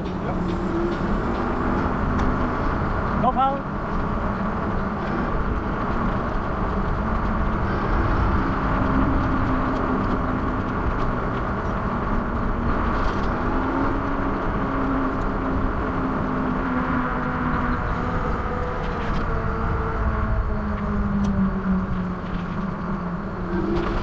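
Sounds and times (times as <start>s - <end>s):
wind and road noise: 0.0s - 24.0s.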